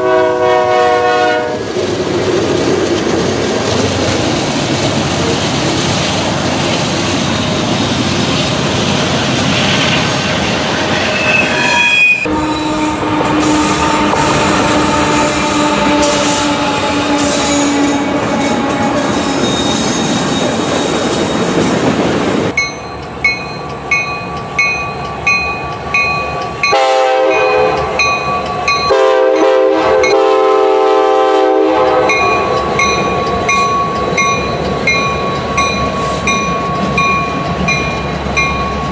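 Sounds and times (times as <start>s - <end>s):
locomotive horn: 0.0s - 1.7s, 11.3s - 20.0s, 26.6s - 28.1s, 28.8s - 32.6s
train wheels rumbling on rail: 0.0s - 38.9s
repeating bell ringing: 22.6s - 26.8s, 27.4s - 29.0s, 32.1s - 38.9s.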